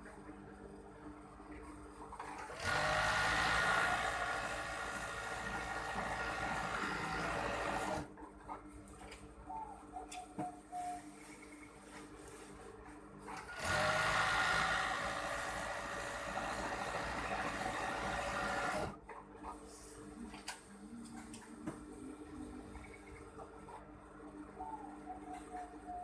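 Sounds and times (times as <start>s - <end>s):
sewing machine running: 2.4s - 8.1s, 13.4s - 19.0s.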